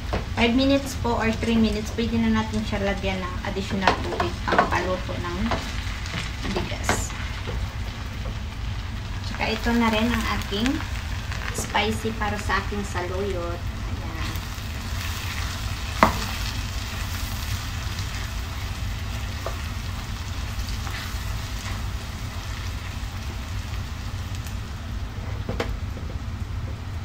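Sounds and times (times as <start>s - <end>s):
food sizzling in oil: 0.0s - 27.0s.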